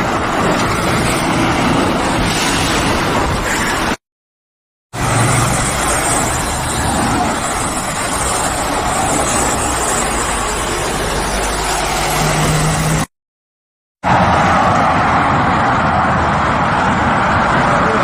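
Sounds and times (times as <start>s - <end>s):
wind and road rush: 0.0s - 4.0s, 4.9s - 13.1s, 14.0s - 18.0s.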